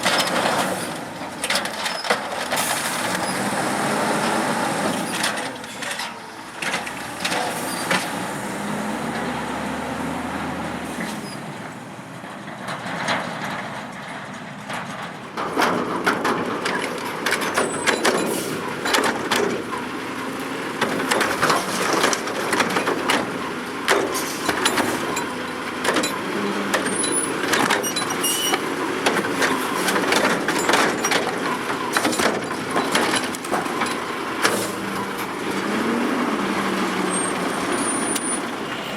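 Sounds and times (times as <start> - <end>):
garbage truck engine: 0.0 - 38.9
clanks and knocks: 12.2 - 19.9, 20.8 - 35.9.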